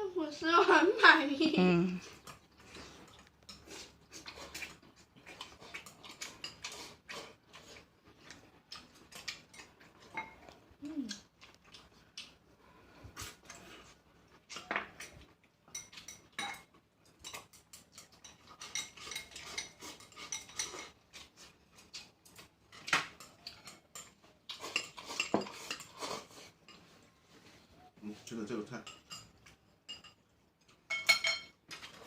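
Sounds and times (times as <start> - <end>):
utensils clinking against plates: 15.7 - 21.3, 22.7 - 27.0, 28.5 - 32.0.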